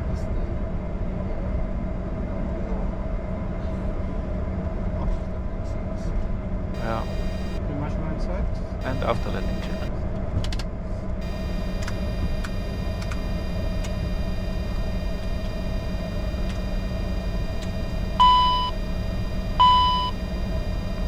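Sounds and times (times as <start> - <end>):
aircraft cockpit hum: 6.6 - 7.8, 8.7 - 21.0
short high beeps: 6.8 - 7.6, 8.8 - 9.9, 11.2 - 21.0
faint clicks: 10.5 - 15.5, 17.5 - 17.8.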